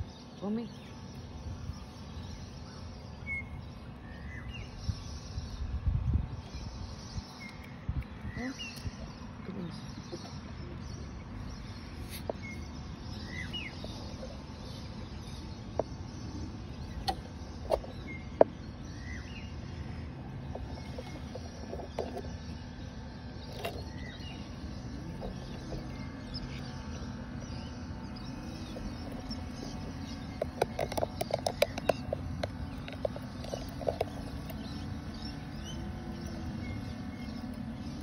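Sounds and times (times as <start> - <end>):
birds chirping: 0.0 - 38.0
outdoor background hum: 0.0 - 38.0
sharp clicks: 29.7 - 35.2.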